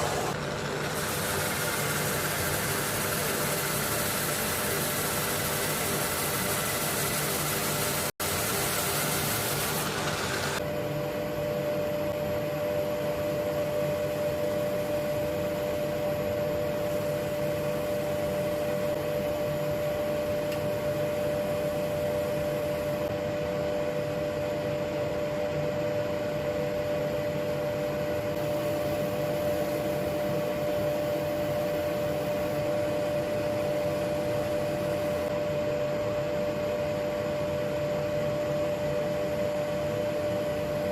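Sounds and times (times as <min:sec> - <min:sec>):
woodturning lathe humming: 0:00.0 - 0:10.6.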